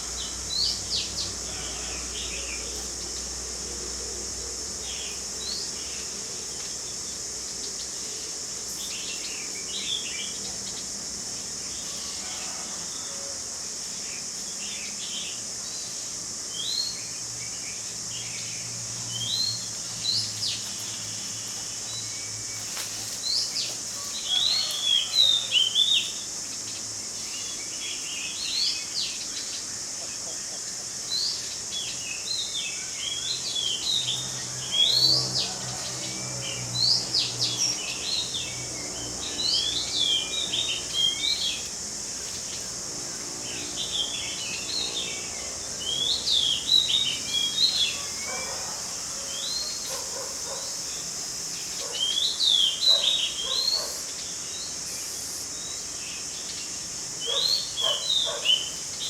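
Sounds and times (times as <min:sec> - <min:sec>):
steady high hiss: 0:00.0 - 0:59.0
birds chirping: 0:43.5 - 0:59.0.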